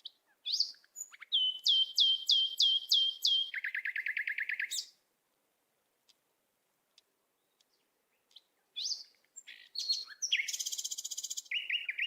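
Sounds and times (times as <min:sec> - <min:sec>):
bird chirps: 0:00.0 - 0:05.0, 0:07.4 - 0:12.0
bird whistled notes: 0:00.5 - 0:04.9, 0:08.8 - 0:12.0.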